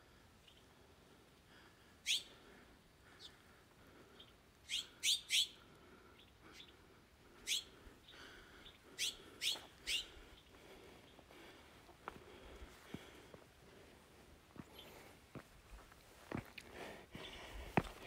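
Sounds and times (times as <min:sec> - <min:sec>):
bird chirping: 0:02.0 - 0:02.4, 0:04.1 - 0:05.6, 0:06.2 - 0:06.8, 0:07.4 - 0:11.2.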